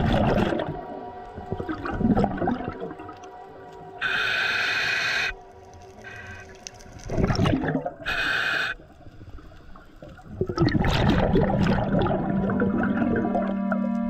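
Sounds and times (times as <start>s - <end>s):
gurgling exhaled bubbles: 0.0s - 3.2s, 7.0s - 8.7s, 9.8s - 13.8s
regulator inhale hisses: 4.0s - 6.9s, 8.0s - 9.9s.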